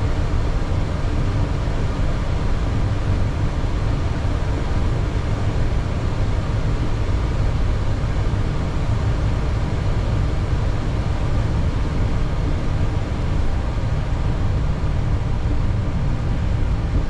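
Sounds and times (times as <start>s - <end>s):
aircraft cockpit rumble and hiss: 0.0s - 17.0s.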